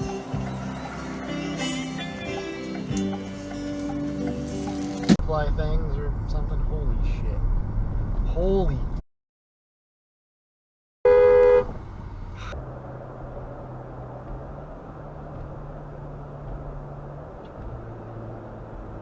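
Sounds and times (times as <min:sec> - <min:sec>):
car road and engine noise: 0:00.0 - 0:09.0, 0:11.1 - 0:19.0
car horn blast: 0:11.0 - 0:11.7.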